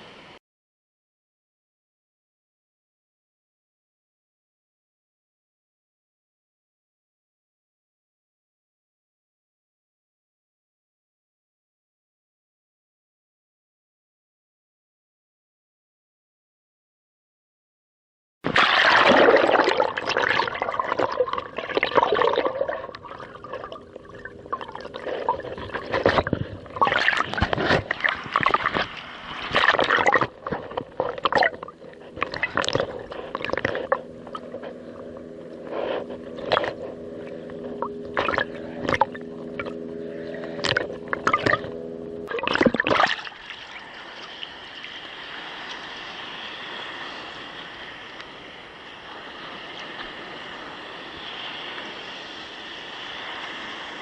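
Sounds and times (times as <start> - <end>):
wind: 0.0 - 0.4, 18.4 - 54.0
steady low hum: 18.5 - 54.0
water splashing against kayak: 18.5 - 54.0.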